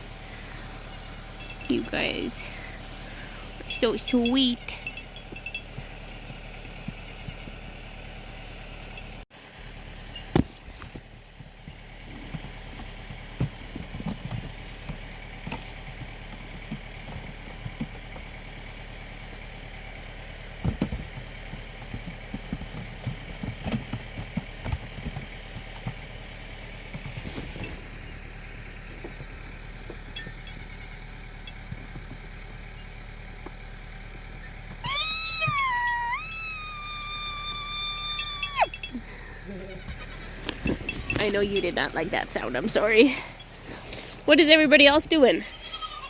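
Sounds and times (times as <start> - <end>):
tractor engine idling: 0.0 - 46.0
knocks and rustling: 9.9 - 36.0, 38.7 - 45.6.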